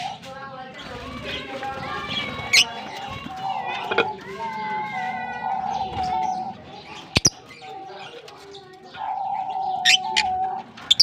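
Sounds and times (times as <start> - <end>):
lovebirds chirping: 0.0 - 11.0.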